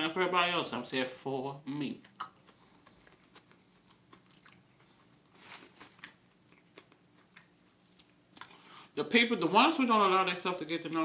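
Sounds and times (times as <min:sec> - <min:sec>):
person chewing food: 0:01.7 - 0:09.6.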